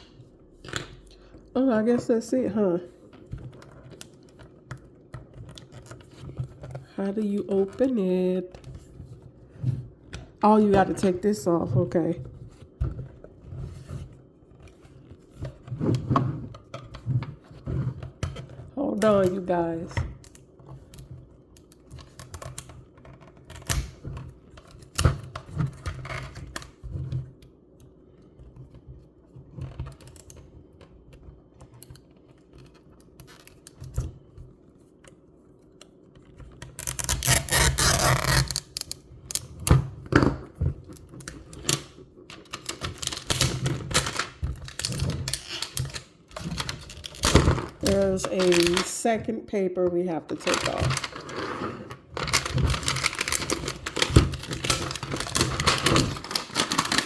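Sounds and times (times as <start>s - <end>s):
paper peeling rustle: 52.2s - 57.0s.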